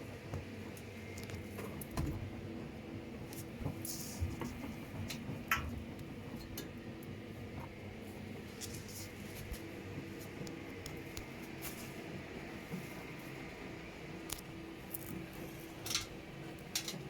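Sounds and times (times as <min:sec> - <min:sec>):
washing machine motor hum: 0:00.0 - 0:17.0
wet laundry tumbling: 0:00.1 - 0:17.0.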